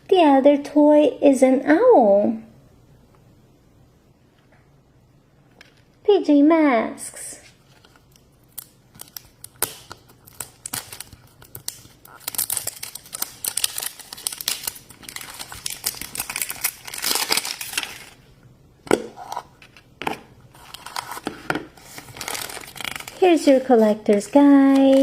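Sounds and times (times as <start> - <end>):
wrapper crinkling and tearing: 7.6 - 18.3, 20.5 - 25.0.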